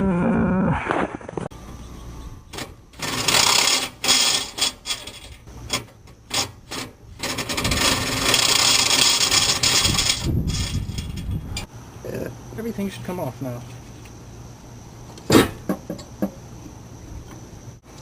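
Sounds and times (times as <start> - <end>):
ratchet wrench ratcheting: 3.0 - 11.3.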